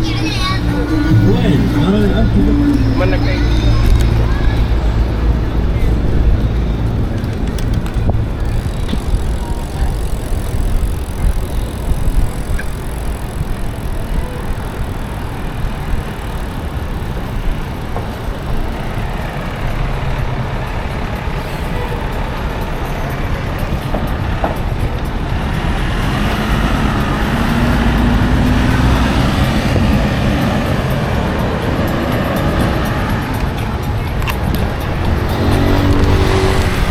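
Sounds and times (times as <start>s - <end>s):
city traffic noise: 0.0s - 36.9s
vehicle engine speeding up: 0.0s - 36.9s
wind buffeting microphone: 0.0s - 36.9s.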